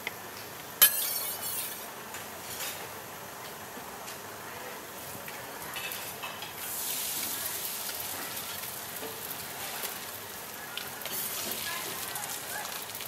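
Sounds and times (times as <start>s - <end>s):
dough sizzling in hot oil: 4.3s - 13.0s.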